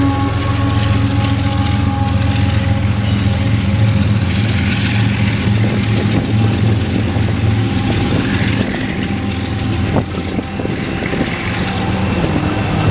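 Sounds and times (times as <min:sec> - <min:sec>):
freight train rumbling: 0:00.0 - 0:12.9.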